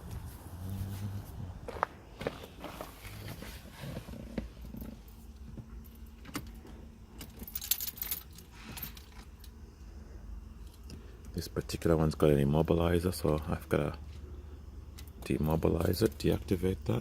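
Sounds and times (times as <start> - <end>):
car keys jangling: 7.1 - 9.2.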